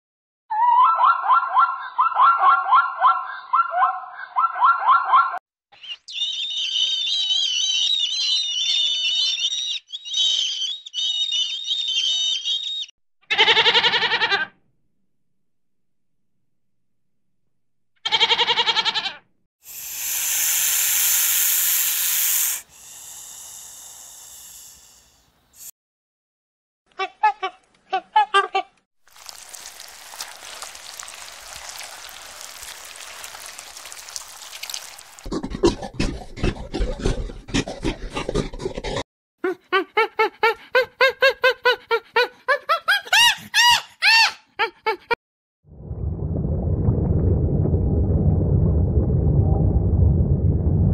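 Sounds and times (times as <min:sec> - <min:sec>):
monkey squeaky calls: 0:00.5 - 0:14.4, 0:42.2 - 0:44.4
goat bleating: 0:13.3 - 0:14.5, 0:18.1 - 0:19.2
snake hissing: 0:19.6 - 0:25.7
irregular crackling noise: 0:29.0 - 0:38.8.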